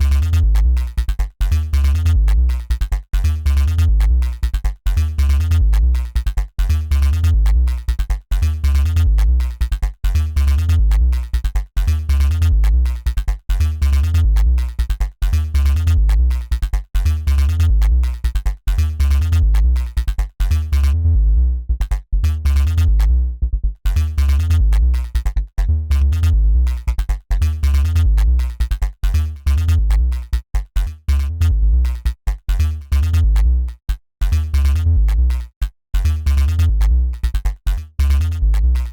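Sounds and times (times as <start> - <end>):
synth bass riff: 0.0 - 38.9.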